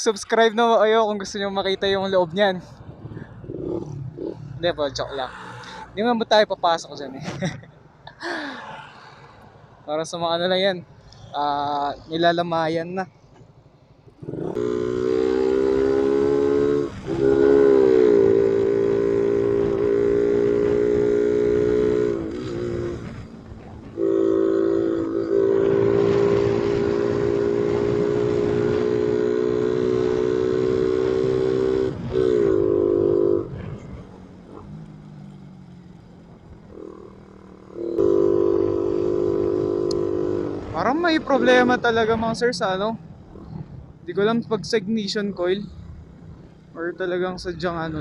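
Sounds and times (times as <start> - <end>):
motorcycle engine revving: 1.3 - 6.1, 14.2 - 48.0.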